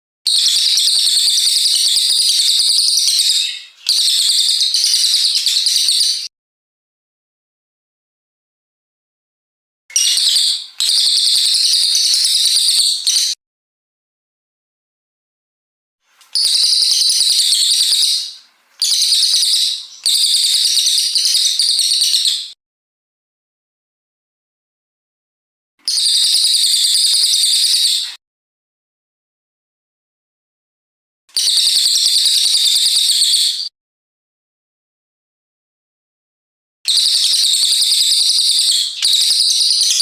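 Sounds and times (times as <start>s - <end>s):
bird singing rapid high notes: 0.3s - 6.3s, 9.9s - 13.4s, 16.2s - 22.6s, 25.9s - 28.2s, 36.9s - 40.0s
songbird trilling: 16.2s - 22.4s.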